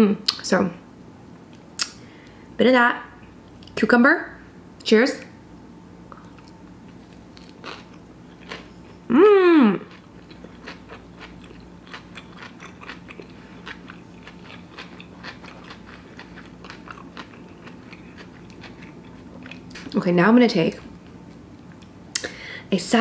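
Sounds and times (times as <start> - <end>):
person humming mmm: 9.0 - 10.0
wet chewing clicks and smacks: 10.0 - 20.0.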